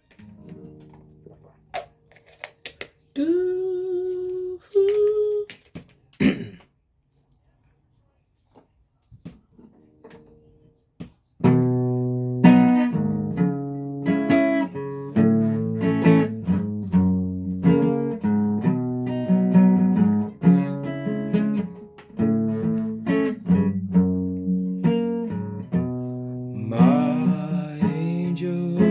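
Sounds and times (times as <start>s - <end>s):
guitar strummed in chords: 11.4s - 28.9s.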